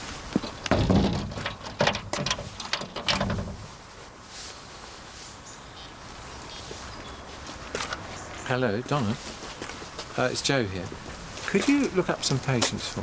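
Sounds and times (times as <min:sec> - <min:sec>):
locks and bolts clicking: 0:00.4 - 0:03.5
door shutting: 0:00.7 - 0:03.6.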